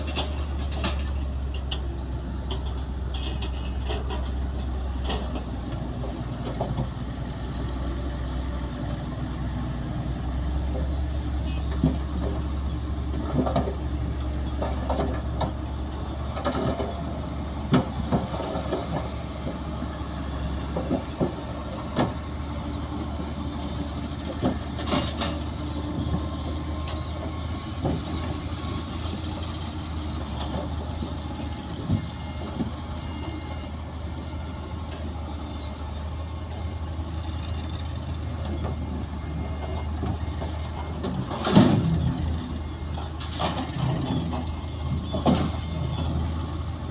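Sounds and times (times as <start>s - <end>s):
metal clanks and knocks: 0.0s - 7.0s, 11.5s - 19.8s, 20.6s - 22.2s, 24.2s - 29.2s, 38.4s - 45.8s
heavy diesel machinery running: 0.0s - 46.9s.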